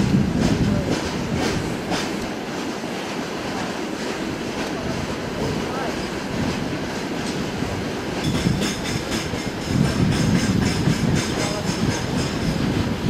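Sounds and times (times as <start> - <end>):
freight wagons rumbling on track: 0.0 - 13.0
wheel clacks over rail joints: 8.2 - 12.8.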